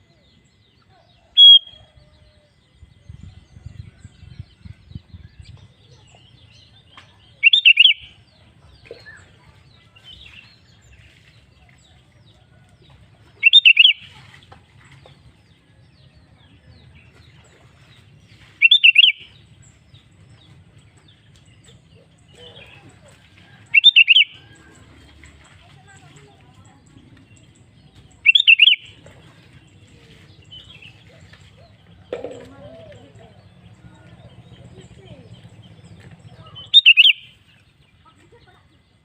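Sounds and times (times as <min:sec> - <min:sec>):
bulbul singing: 0:01.2 - 0:02.0, 0:03.2 - 0:11.1, 0:13.3 - 0:14.2, 0:18.4 - 0:20.6, 0:21.2 - 0:38.4.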